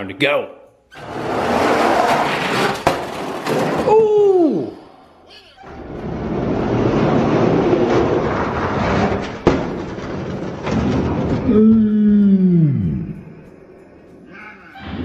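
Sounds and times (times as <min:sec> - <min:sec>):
toy trucks rolling on track: 0:01.0 - 0:15.0
person exclaiming: 0:03.9 - 0:05.5.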